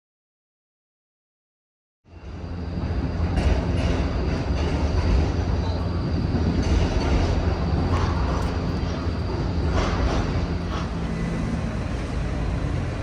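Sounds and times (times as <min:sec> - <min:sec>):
rail vehicle rumble: 0:02.1 - 0:13.0.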